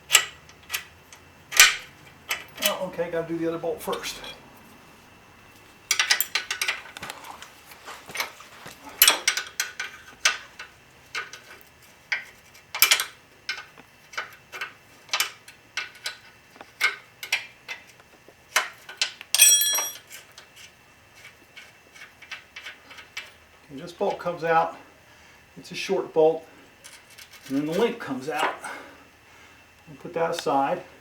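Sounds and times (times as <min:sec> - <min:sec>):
wrenches clicking on metal: 0:01.5 - 0:02.9, 0:05.9 - 0:20.4.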